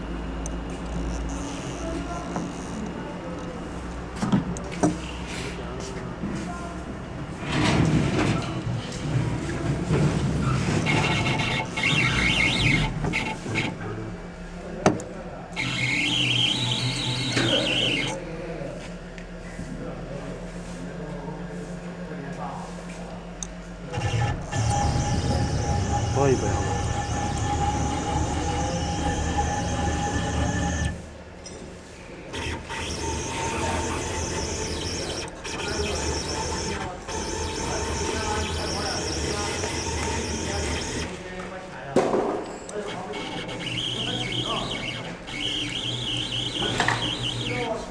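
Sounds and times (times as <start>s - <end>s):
router drive motors whining: 9.5s - 14.2s, 15.5s - 18.2s, 23.8s - 31.2s, 32.2s - 41.5s, 42.7s - 47.9s.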